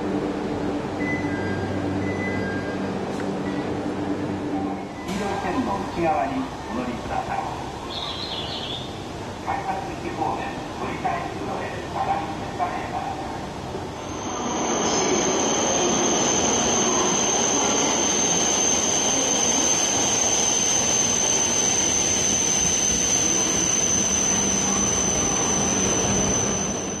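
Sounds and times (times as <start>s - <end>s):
train rushing rumble: 0.0s - 27.0s
high-pitched squeal: 14.0s - 27.0s.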